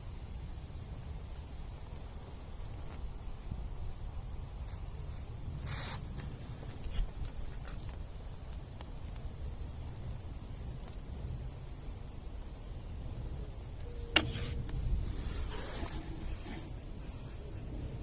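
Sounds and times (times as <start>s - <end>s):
insects chirping in trills: 0.0s - 18.0s
sharp click: 14.1s - 14.8s.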